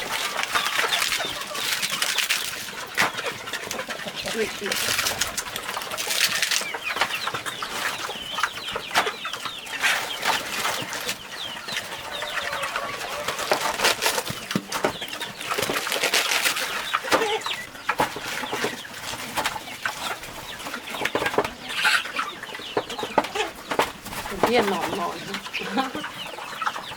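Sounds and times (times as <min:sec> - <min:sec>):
chickens clucking and cheeping: 0:00.0 - 0:26.9.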